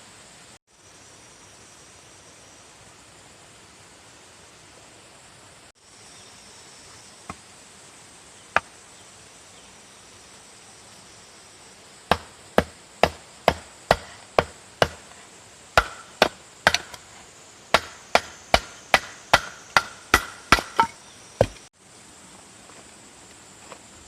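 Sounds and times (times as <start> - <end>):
faint insect drone: 0.0 - 24.0
hatchet chopping wood: 12.1 - 15.2, 15.8 - 17.1, 17.7 - 21.7.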